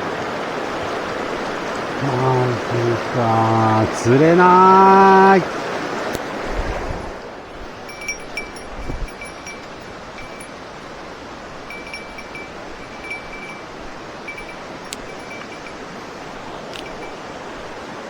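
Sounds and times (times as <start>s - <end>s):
rushing mountain stream: 0.0s - 18.0s
faint high ringing pings: 7.5s - 17.4s.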